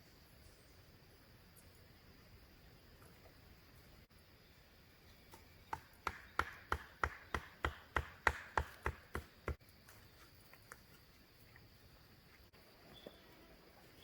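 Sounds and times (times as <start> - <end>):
chopping strikes on wood: 5.3 - 9.6.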